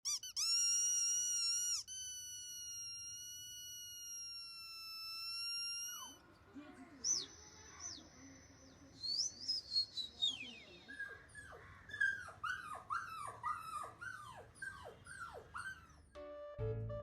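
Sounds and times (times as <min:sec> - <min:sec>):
high squeaky tone: 0:00.0 - 0:06.2
short high squeaks: 0:00.0 - 0:06.2.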